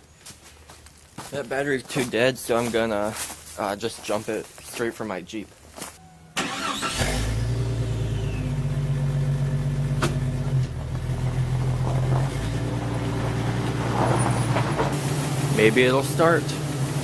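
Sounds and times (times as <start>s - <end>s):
car engine starting and idling: 6.4s - 17.0s.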